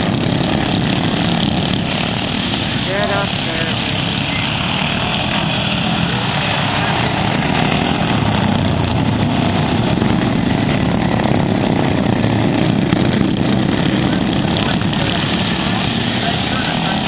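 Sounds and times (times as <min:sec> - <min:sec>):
lawn mower engines droning: 0:00.0 - 0:17.0.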